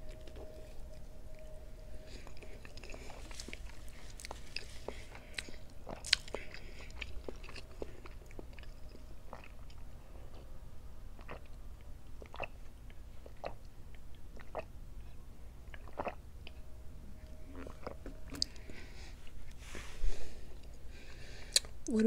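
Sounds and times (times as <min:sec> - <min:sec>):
wet chewing: 0:00.0 - 0:10.5, 0:11.2 - 0:14.7, 0:15.6 - 0:16.6, 0:17.2 - 0:19.2
mouth clicks and smacks: 0:21.5 - 0:21.7.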